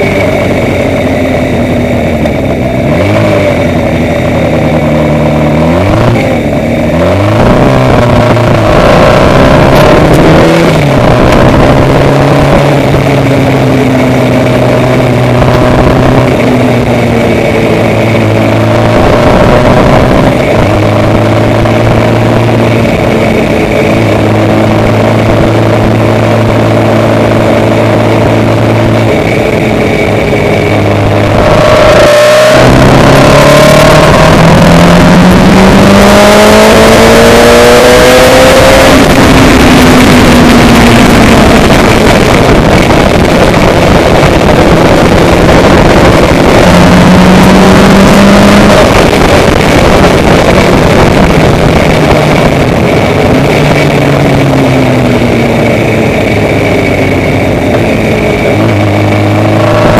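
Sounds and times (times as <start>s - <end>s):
vehicle engine accelerating: 0.0s - 59.9s.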